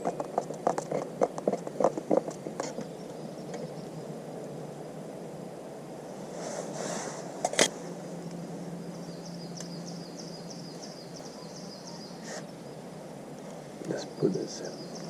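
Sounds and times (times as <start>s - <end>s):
rustle: 0.0s - 15.0s
steady low hum: 0.0s - 15.0s
small bird chirping: 2.1s - 4.4s, 8.7s - 13.1s, 13.8s - 15.0s.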